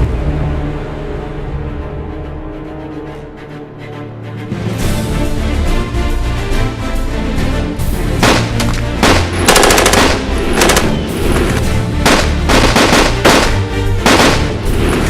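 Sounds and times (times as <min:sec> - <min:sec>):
background music: 0:00.0 - 0:15.0
automatic gunfire bursts: 0:08.2 - 0:11.0, 0:12.1 - 0:14.6.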